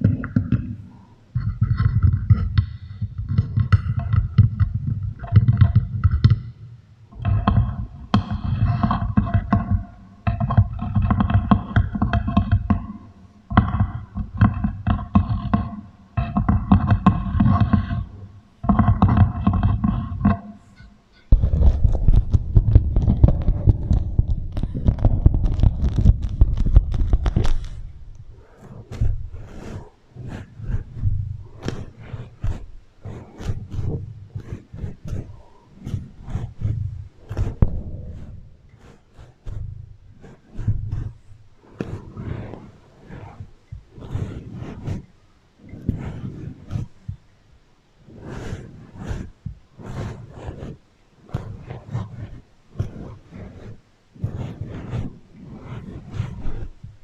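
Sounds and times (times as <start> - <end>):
low rumble: 21.3 - 29.6
wax wrap crinkling: 21.4 - 28.3.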